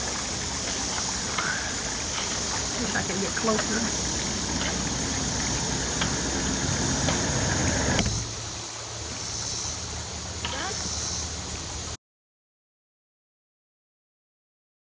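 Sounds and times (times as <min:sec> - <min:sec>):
water rushing: 0:00.0 - 0:09.1
low hum: 0:01.2 - 0:08.6.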